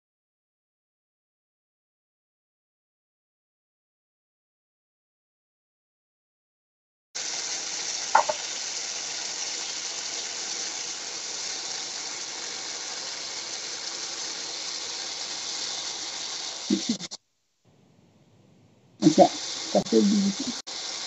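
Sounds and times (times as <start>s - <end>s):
vegetables frying in oil: 7.2s - 17.2s, 19.0s - 21.0s.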